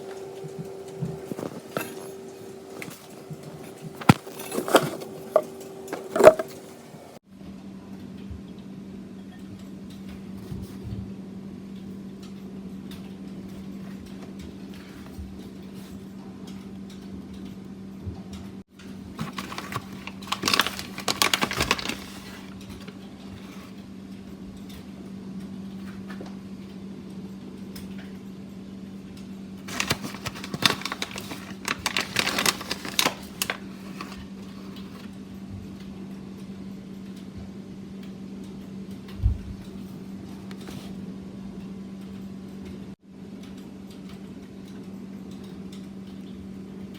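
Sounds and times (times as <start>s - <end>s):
steady low hum: 0.0s - 46.9s
rapid clicking and clattering: 19.1s - 22.9s, 29.7s - 35.1s.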